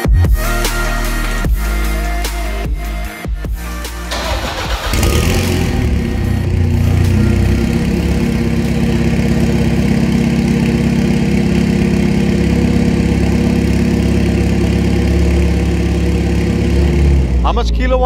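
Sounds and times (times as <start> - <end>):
car engine running steadily: 3.9 - 18.0.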